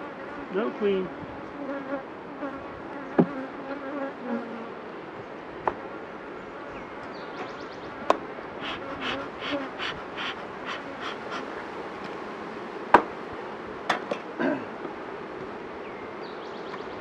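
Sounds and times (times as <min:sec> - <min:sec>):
honeybees buzzing: 0:00.0 - 0:13.9
short rasping strokes: 0:08.6 - 0:11.6.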